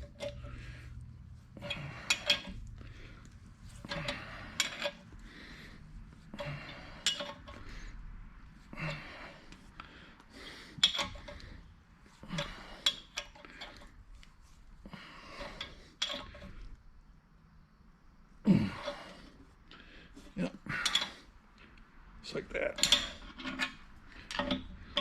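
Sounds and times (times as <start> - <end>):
metal clicking and clinking: 0.0 - 5.1, 6.4 - 7.8, 10.8 - 11.6, 20.8 - 21.2, 22.7 - 25.0.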